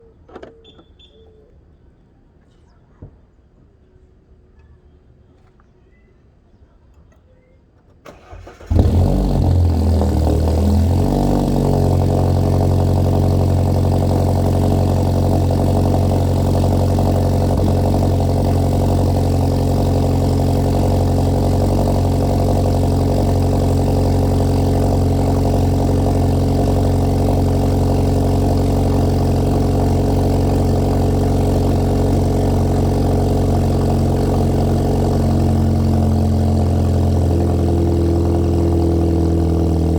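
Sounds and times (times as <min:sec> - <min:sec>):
car engine cold start and idle: 0:08.0 - 0:39.9.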